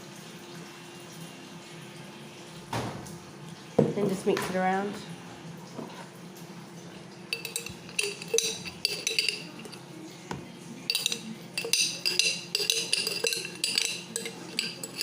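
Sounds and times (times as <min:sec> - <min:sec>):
spoon clinking and scraping pot: 0:07.3 - 0:09.9, 0:10.8 - 0:15.0.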